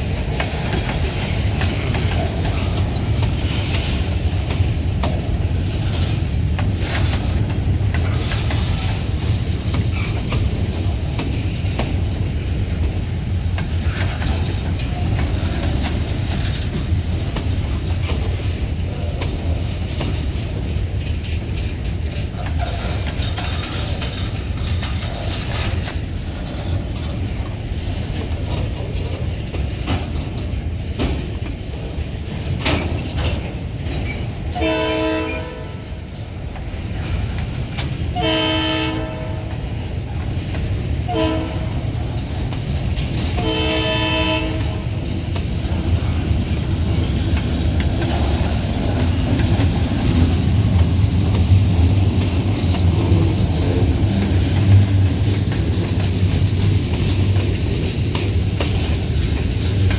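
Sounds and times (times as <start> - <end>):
train rumbling: 0.0 - 59.9
locomotive horn blasts: 34.6 - 35.8, 38.2 - 39.5, 41.1 - 41.8, 43.4 - 44.8.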